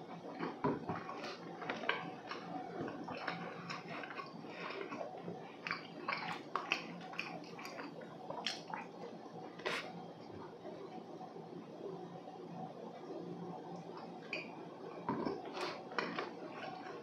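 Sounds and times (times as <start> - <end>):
chewing dry cakes: 0.0 - 10.0, 13.9 - 17.0.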